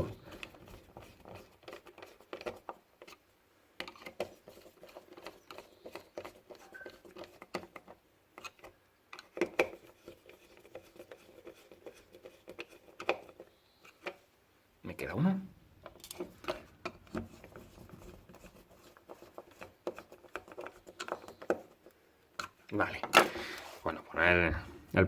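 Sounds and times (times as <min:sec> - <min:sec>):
screwdriver clicks and scratches: 0:03.8 - 0:14.2.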